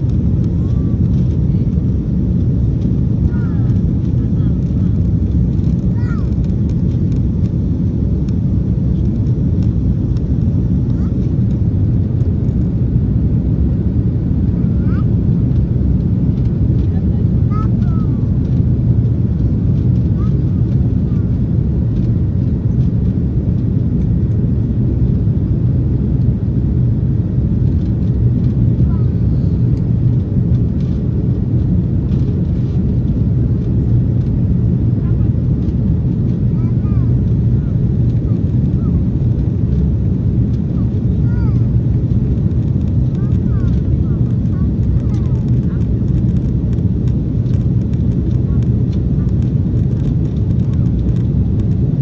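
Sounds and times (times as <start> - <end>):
airliner engines rumbling: 0.0 - 52.0.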